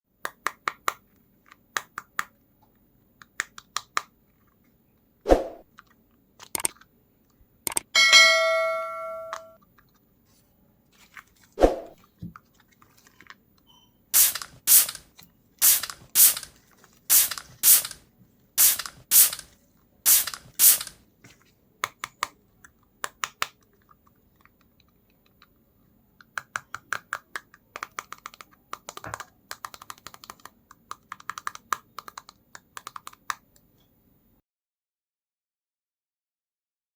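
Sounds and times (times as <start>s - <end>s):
plastic clicks and taps: 7.7s - 7.9s, 21.8s - 25.6s
ringing ding: 8.0s - 9.6s
short hissing bursts: 14.2s - 18.0s, 18.6s - 19.5s, 20.1s - 21.0s.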